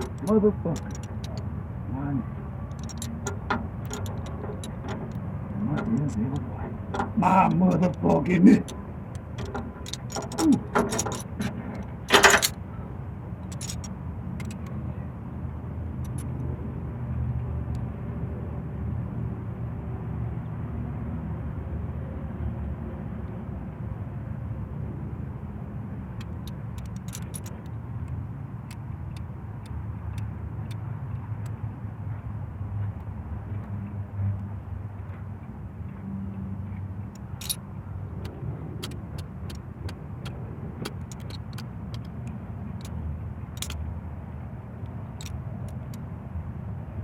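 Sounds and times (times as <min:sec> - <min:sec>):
vehicle engine rumbling: 0:00.0 - 0:18.4, 0:23.9 - 0:47.0
sharp knocks and clatters: 0:02.7 - 0:08.0, 0:08.6 - 0:12.6, 0:13.4 - 0:14.6, 0:38.2 - 0:42.2, 0:43.6 - 0:43.8.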